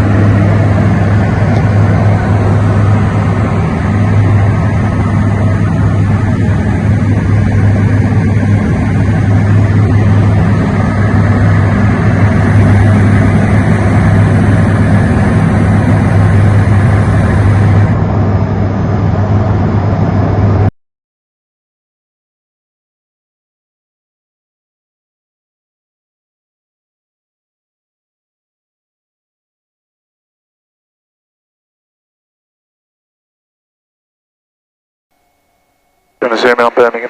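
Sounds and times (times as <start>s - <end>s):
light aircraft engine drone: 0.0s - 20.7s, 35.2s - 37.0s.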